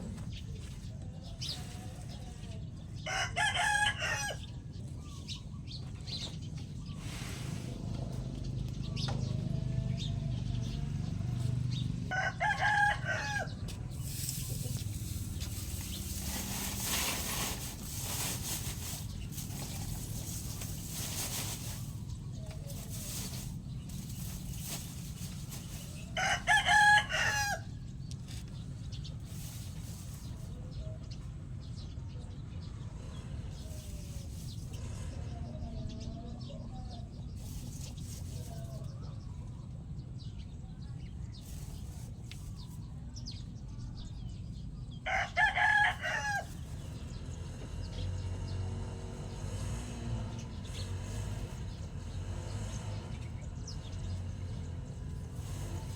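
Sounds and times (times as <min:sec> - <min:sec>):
rooster crowing: 0:03.0 - 0:04.4, 0:12.1 - 0:13.7, 0:26.1 - 0:27.8, 0:45.0 - 0:46.6.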